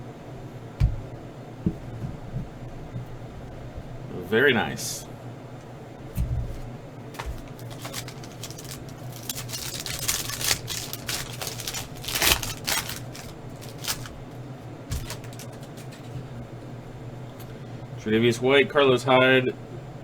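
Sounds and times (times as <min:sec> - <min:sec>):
steady low hum: 0:00.0 - 0:20.0
foil wrapper crinkling: 0:06.5 - 0:16.4.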